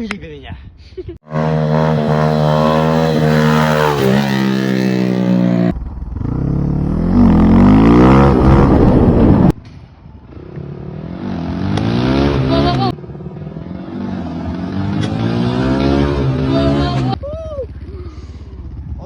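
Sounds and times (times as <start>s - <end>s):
motorcycle engine revving: 1.2s - 9.6s, 10.3s - 19.0s.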